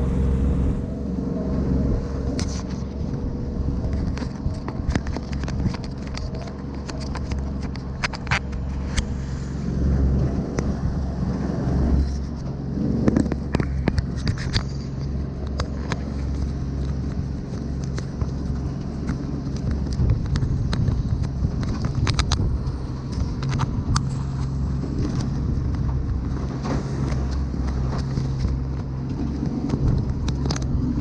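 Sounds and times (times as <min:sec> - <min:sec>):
motor humming: 0:00.0 - 0:04.2
hull slapping in choppy water: 0:00.0 - 0:31.0.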